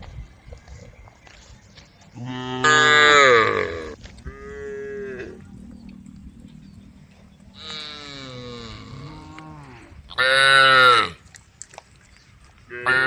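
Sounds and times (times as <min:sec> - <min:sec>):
cattle mooing: 0:02.2 - 0:05.6, 0:07.6 - 0:11.2.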